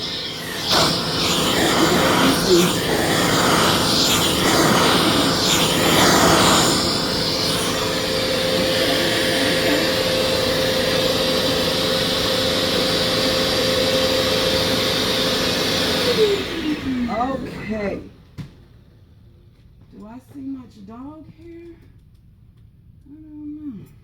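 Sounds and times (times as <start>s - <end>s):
vacuum cleaner running: 0.0s - 18.2s.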